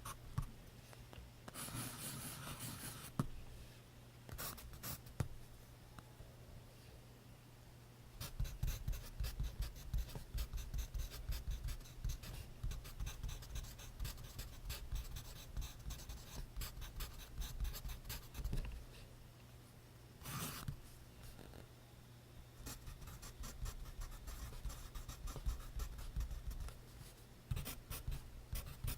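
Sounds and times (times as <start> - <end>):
pencil scratching on paper: 8.2 - 18.5, 27.5 - 28.9.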